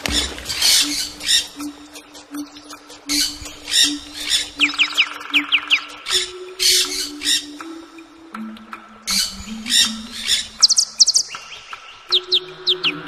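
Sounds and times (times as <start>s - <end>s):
downward whistled bird notes: 0.0s - 7.8s.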